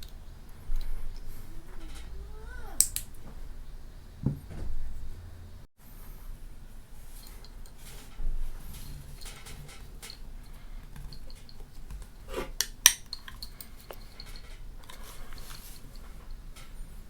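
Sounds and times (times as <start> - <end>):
parts rattling: 7.2 - 17.0
clicks of handled metal parts: 8.8 - 16.8.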